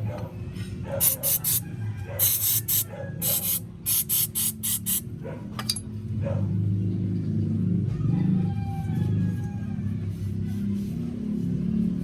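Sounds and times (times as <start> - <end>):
spray nozzle hissing bursts: 1.0 - 1.6, 2.2 - 5.0.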